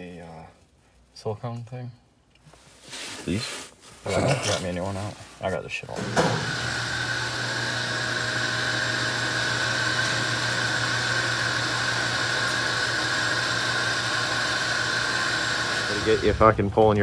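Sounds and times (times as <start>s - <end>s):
small electric motor whining: 6.0s - 16.6s.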